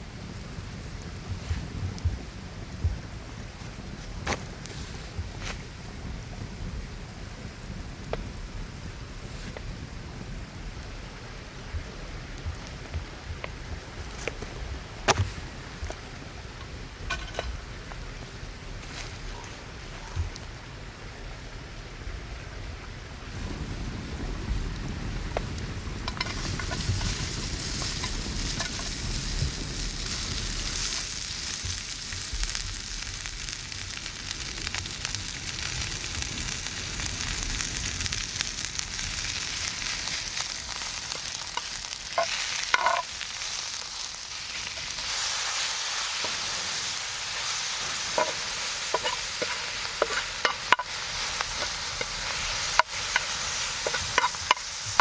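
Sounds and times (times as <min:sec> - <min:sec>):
food sizzling in a pan: 0:24.1 - 0:55.0.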